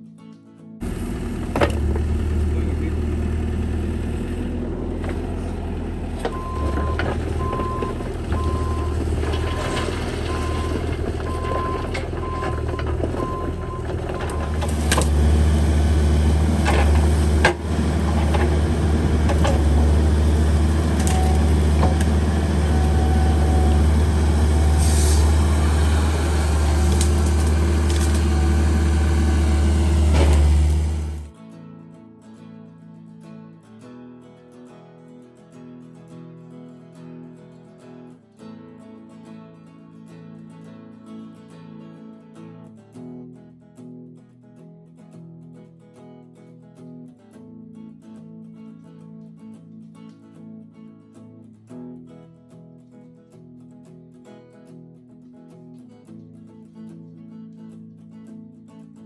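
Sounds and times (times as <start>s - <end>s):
mini excavator engine hum: 0.8s - 31.3s.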